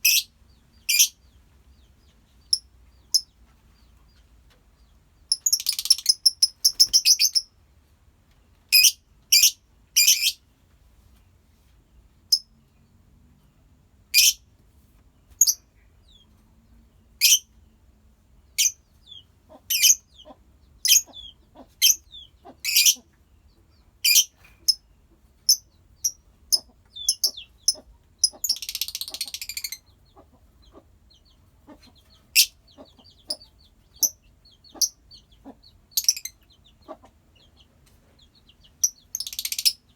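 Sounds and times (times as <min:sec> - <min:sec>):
birds chattering rapidly: 0:00.0 - 0:07.5, 0:18.5 - 0:39.9
birds chirping: 0:00.0 - 0:07.5, 0:15.2 - 0:39.9.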